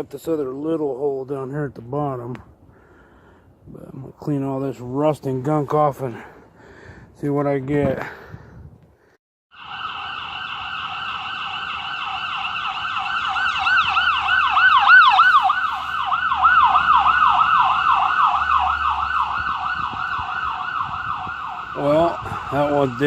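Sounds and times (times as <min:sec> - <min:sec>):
emergency siren yelping: 0:09.5 - 0:23.0.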